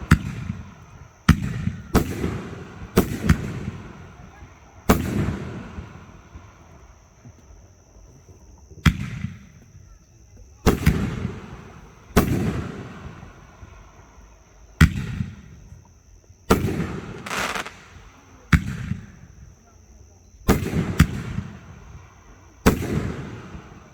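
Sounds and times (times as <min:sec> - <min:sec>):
fireworks booming: 0:00.0 - 0:06.6, 0:10.7 - 0:14.0, 0:16.5 - 0:19.6, 0:20.4 - 0:23.9.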